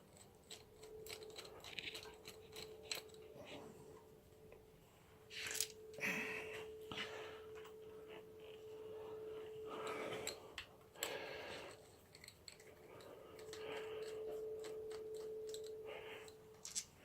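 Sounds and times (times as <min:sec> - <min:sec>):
faint steady hum: 0:00.0 - 0:17.0
metallic clicks of hand tools: 0:00.1 - 0:03.2.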